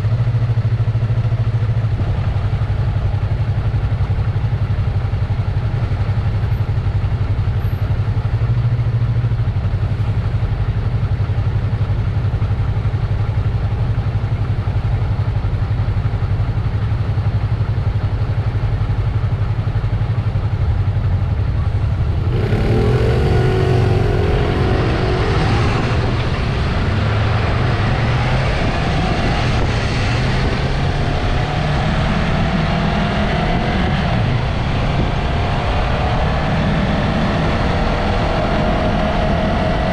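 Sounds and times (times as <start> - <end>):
motorcycle engine revving: 20.5 - 39.9.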